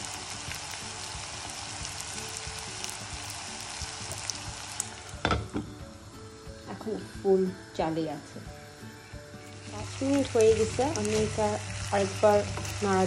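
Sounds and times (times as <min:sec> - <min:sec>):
vegetables frying in oil: 0:00.0 - 0:07.0, 0:09.4 - 0:13.0.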